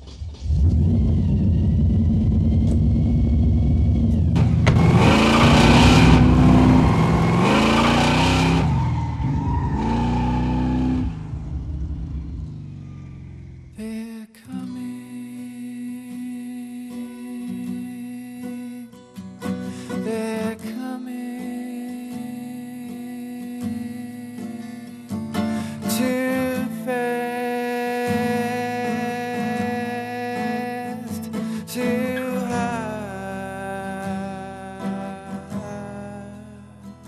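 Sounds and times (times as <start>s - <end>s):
car engine revving: 0.0s - 13.8s
guitar music: 4.4s - 13.8s, 14.5s - 37.0s.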